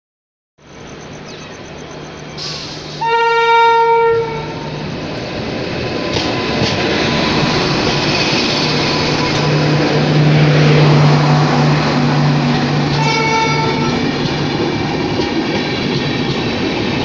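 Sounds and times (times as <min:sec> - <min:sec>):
train rumble: 0:00.6 - 0:17.0
locomotive horn blast: 0:02.6 - 0:04.8, 0:12.9 - 0:14.1.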